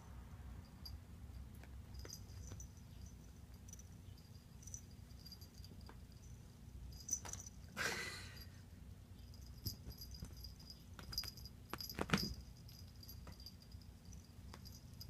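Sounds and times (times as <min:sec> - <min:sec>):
kitten paws tapping on floor: 0:09.6 - 0:13.6.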